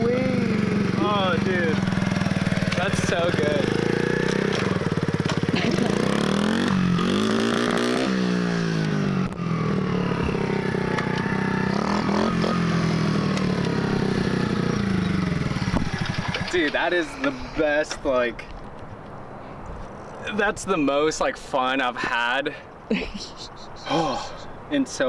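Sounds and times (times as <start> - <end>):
dirt bike engine revving: 0.0 - 17.6.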